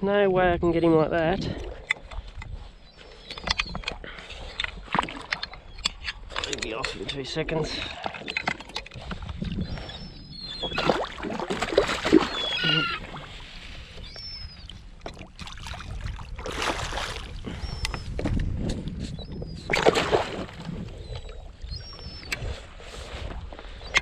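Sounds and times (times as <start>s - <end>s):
water splashing against kayak hull: 3.5s - 6.8s, 7.7s - 18.7s, 19.6s - 24.0s.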